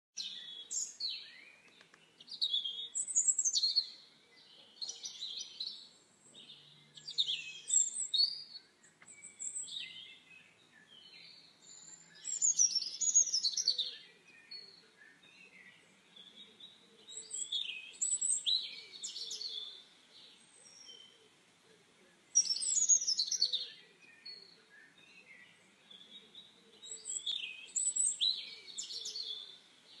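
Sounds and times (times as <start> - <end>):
songbirds chirping and whistling: 0.2 - 30.0.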